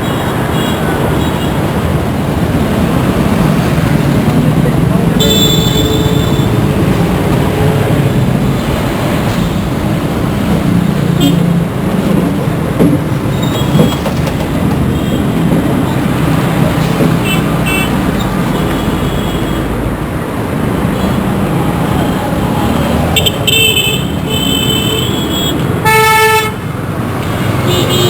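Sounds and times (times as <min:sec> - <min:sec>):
road traffic: 0:00.0 - 0:28.0
car horn beeps: 0:05.2 - 0:06.6, 0:23.2 - 0:26.6, 0:27.6 - 0:28.0.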